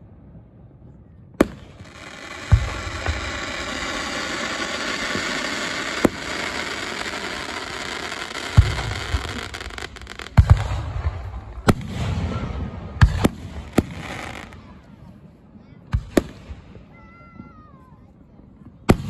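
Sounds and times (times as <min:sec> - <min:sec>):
firework shells bursting: 0:01.4 - 0:12.0, 0:13.1 - 0:14.6
even hiss: 0:01.5 - 0:11.0, 0:13.3 - 0:14.7.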